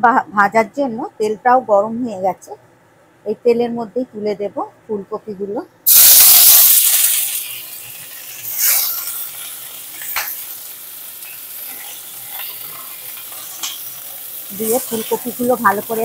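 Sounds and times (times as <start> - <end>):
vegetables sizzling in oil: 5.9 - 16.0.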